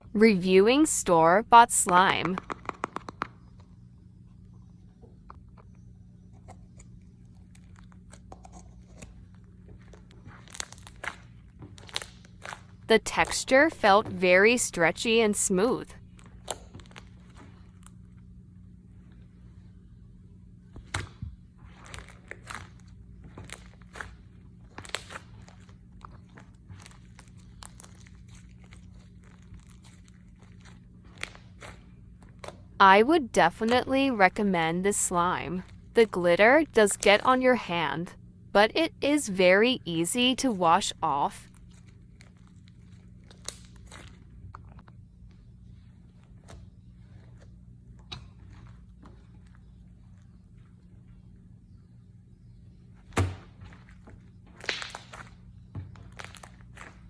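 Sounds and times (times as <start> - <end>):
sticky clicks and pops: 1.9 - 3.4
slime squished by hand: 7.4 - 13.6, 20.8 - 32.6, 41.5 - 44.8, 53.0 - 57.0.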